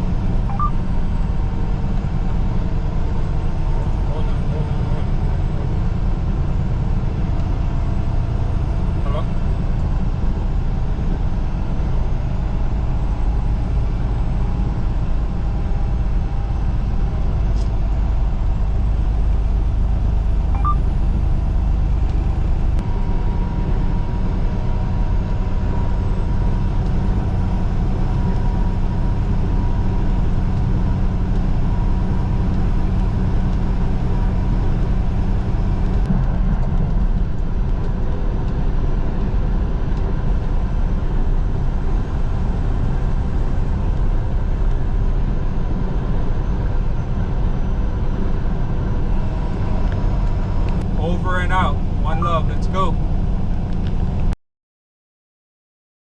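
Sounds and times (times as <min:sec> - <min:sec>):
truck engine and road rumble: 0:00.0 - 0:54.4.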